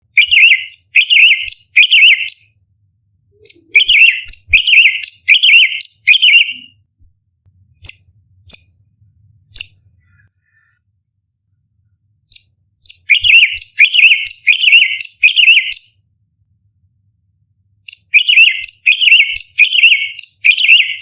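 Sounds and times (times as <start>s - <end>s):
bird warbling song: 0.0s - 2.6s, 3.4s - 6.8s, 12.3s - 16.0s, 17.9s - 21.0s
bird sharp calls: 0.2s - 2.6s, 3.4s - 6.8s.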